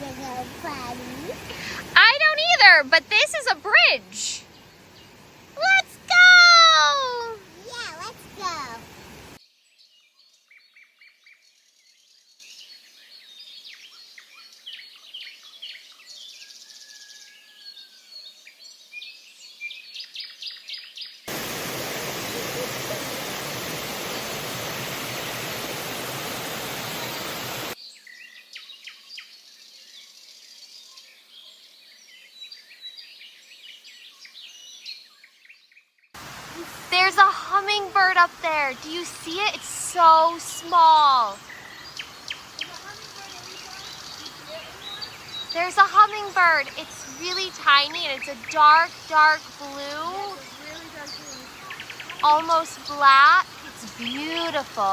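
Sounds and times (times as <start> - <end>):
birds chirping and singing: 0.0 - 7.6, 36.6 - 54.9
faint hiss: 0.0 - 9.4, 21.3 - 27.8, 36.2 - 54.9.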